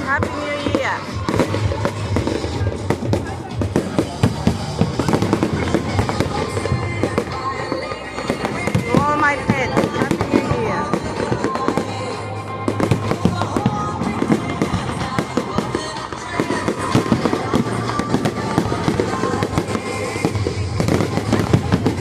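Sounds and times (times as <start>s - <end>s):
fireworks crackling and popping: 0.0s - 22.0s
music playing: 0.0s - 22.0s.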